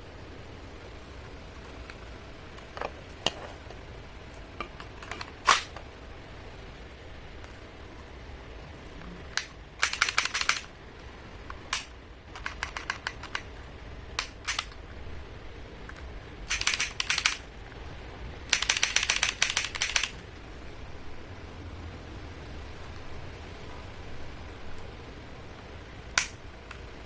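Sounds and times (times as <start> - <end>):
plastic pistol clicking: 5.0 - 5.8, 9.4 - 10.7, 11.6 - 13.5, 14.2 - 14.8, 15.9 - 17.4, 18.5 - 20.2, 26.1 - 26.4.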